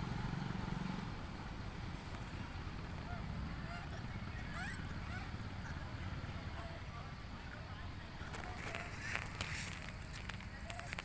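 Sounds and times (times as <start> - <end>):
low engine hum: 0.0 - 11.0
outdoor background noise: 0.0 - 11.0
squeaky animal calls: 3.6 - 5.4.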